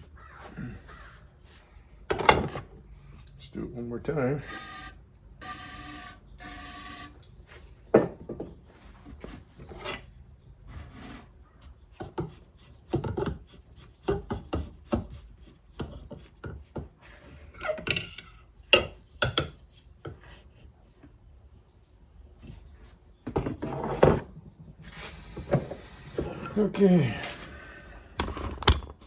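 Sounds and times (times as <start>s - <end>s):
scraping and rubbing: 23.6s - 26.3s.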